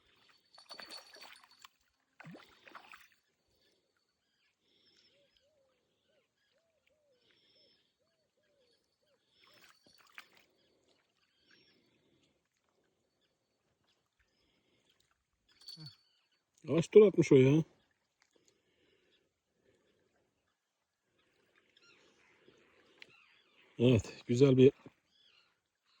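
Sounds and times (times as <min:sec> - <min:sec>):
faint water splashing: 0:00.0 - 0:04.0, 0:09.3 - 0:15.9
soft repeated chirps: 0:15.5 - 0:16.5.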